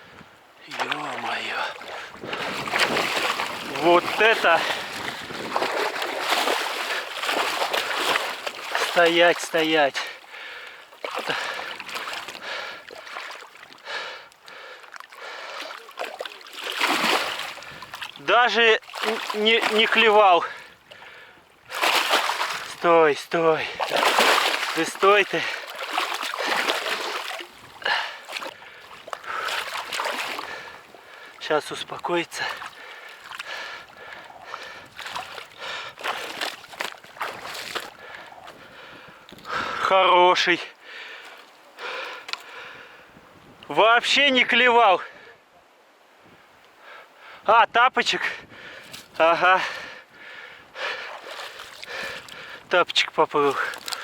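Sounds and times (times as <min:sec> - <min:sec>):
fish thrashing water splashing: 0:00.7 - 0:39.6, 0:50.8 - 0:54.0.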